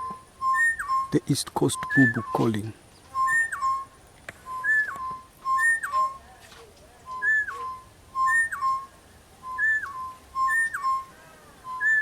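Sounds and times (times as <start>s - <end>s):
birds whistling dropping phrases: 0.0s - 6.3s, 7.0s - 12.0s.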